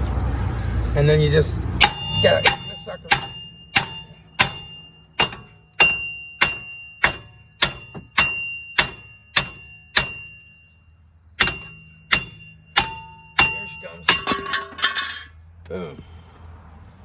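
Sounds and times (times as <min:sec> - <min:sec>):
hammer blows on steel: 0:01.8 - 0:10.5.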